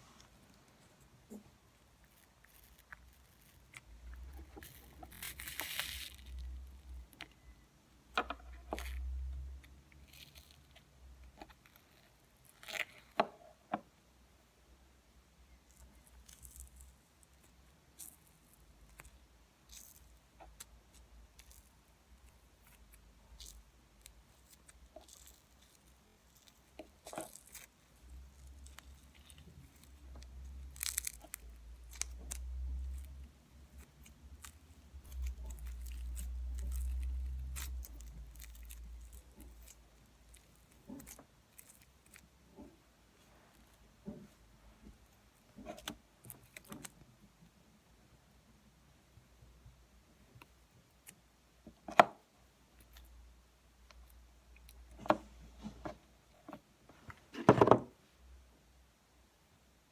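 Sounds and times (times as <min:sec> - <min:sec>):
slime crackling and popping: 0:02.0 - 0:07.2, 0:17.9 - 0:42.3.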